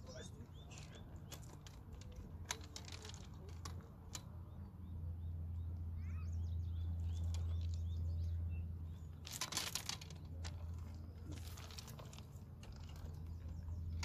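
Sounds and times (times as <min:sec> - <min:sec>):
birds chirping: 0:00.0 - 0:14.0
low outdoor rumble: 0:00.0 - 0:14.0
net rustling and clattering on rocks: 0:00.7 - 0:04.2, 0:09.1 - 0:14.0.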